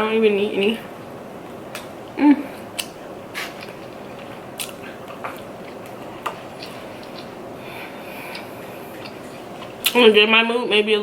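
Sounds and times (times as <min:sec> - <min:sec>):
person chewing food: 0:01.7 - 0:10.0
wet mouth clicks and smacks: 0:02.8 - 0:07.4.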